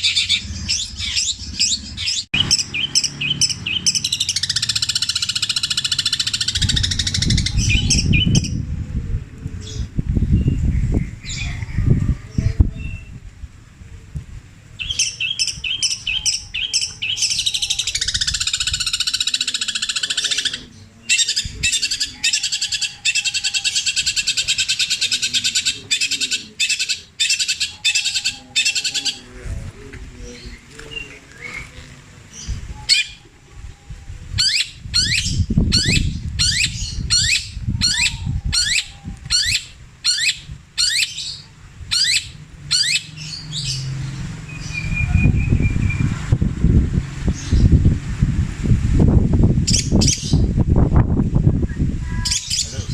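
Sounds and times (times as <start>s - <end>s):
shrike singing: 0.0s - 8.7s, 14.8s - 29.4s, 32.4s - 46.2s.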